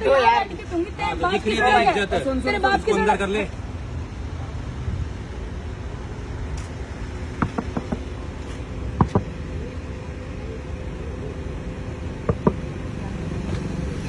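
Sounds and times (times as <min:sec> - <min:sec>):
car engine idling: 0:00.0 - 0:14.0
faint hum: 0:02.6 - 0:14.0
short sharp knocks: 0:07.4 - 0:08.1.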